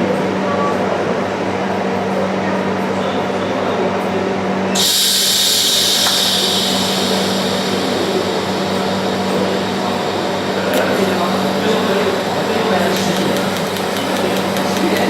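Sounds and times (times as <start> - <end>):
machine hum: 4.8 - 15.0
welding hiss: 4.8 - 15.0.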